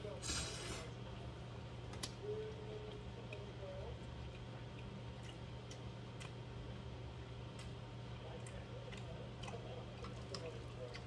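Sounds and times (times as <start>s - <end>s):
steady low hum: 0.0s - 11.0s
person chewing noodles: 4.0s - 6.8s, 7.4s - 11.0s.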